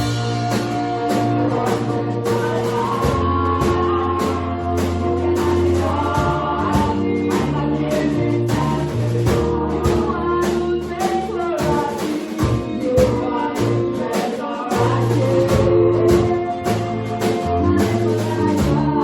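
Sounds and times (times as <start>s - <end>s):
bass notes: 0.0s - 19.0s
choir singing gospel: 0.0s - 19.0s
drums and tambourine beat: 0.0s - 19.0s.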